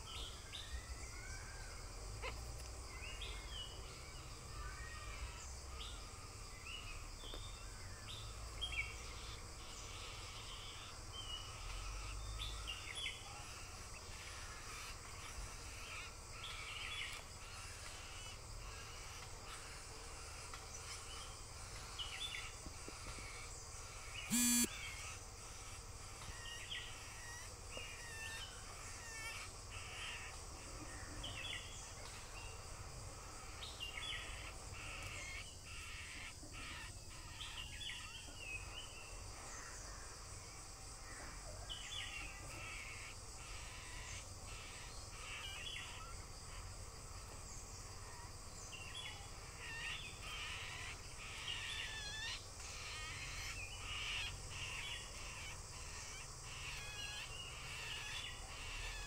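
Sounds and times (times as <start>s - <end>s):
high insect-like hiss: 0.0s - 59.0s
birds calling harshly: 8.8s - 30.4s.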